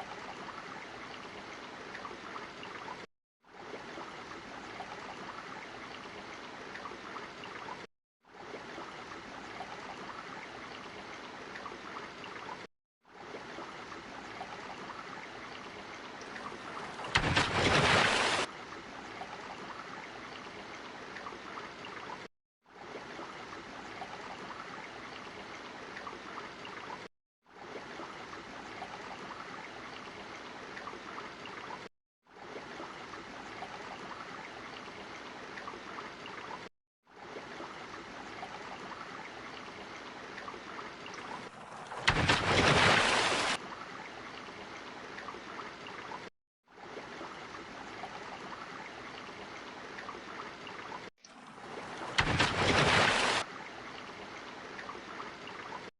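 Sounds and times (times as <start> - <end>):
rushing water: 0.0 - 55.9
water surge: 16.4 - 18.5, 41.2 - 43.6, 51.2 - 53.5.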